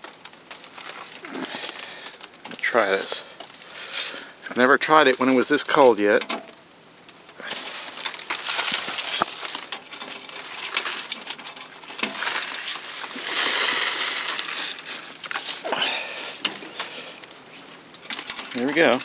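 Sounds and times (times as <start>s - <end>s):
keys jangling: 0.5s - 2.5s, 7.4s - 14.8s, 18.0s - 19.0s.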